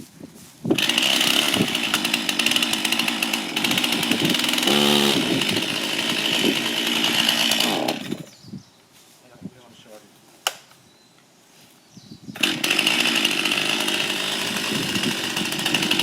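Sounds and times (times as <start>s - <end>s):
chainsaw running: 0.8s - 8.3s, 12.4s - 16.0s.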